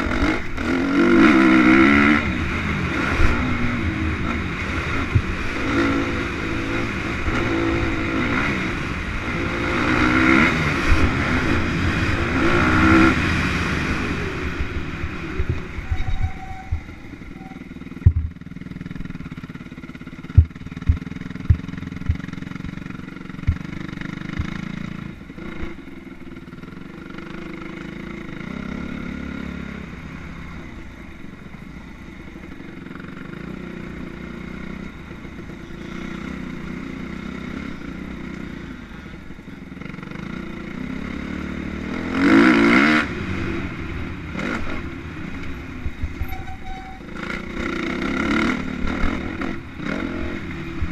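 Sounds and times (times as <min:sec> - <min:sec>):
distant motorcycle engines droning: 0:00.0 - 0:50.9
motorcycle passing and revving: 0:00.0 - 0:50.9
sharp low thumps: 0:17.9 - 0:18.5, 0:20.2 - 0:22.8, 0:23.4 - 0:24.6.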